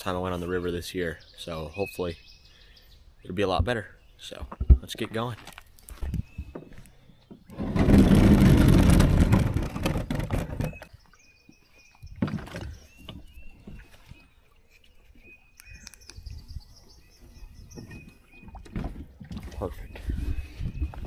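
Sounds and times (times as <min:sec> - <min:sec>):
birds chirping: 0:00.0 - 0:07.8, 0:09.4 - 0:21.0.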